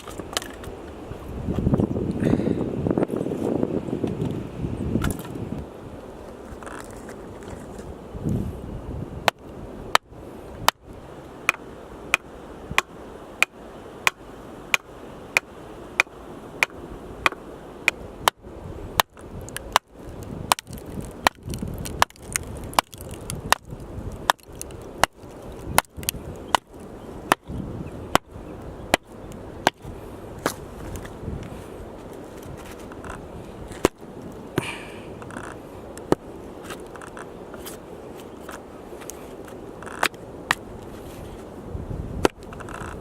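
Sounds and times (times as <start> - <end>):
axe chopping firewood: 9.2 - 10.8, 11.4 - 18.4, 19.0 - 30.6, 33.8 - 34.0.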